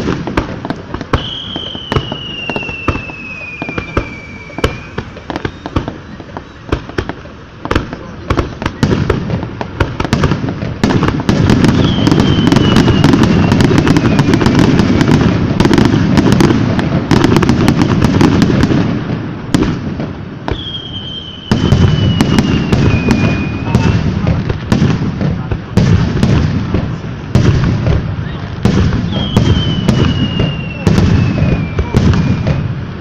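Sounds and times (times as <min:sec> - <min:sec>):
fireworks crackling and popping: 0:00.0 - 0:33.0
firework whistle descending: 0:01.1 - 0:06.7, 0:11.6 - 0:14.8, 0:20.5 - 0:24.0, 0:29.1 - 0:32.7.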